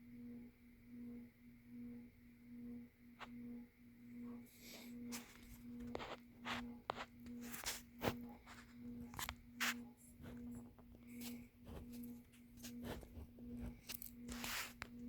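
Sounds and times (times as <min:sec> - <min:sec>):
ceiling fan motor hum: 0:00.0 - 0:15.0.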